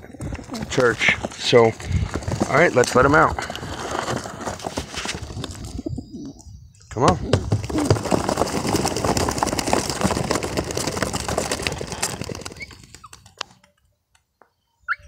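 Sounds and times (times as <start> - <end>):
pigeons flapping wings: 7.3 - 13.7.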